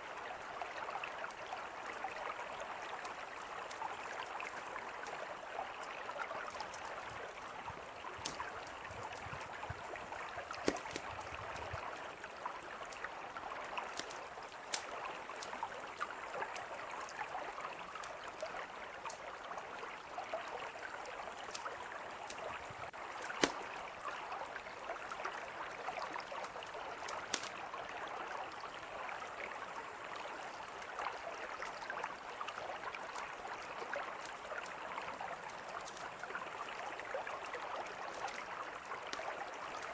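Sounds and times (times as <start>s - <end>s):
campfire crackling and popping: 8.1s - 12.0s, 12.8s - 16.7s, 21.4s - 24.0s, 27.0s - 27.6s, 35.5s - 36.1s.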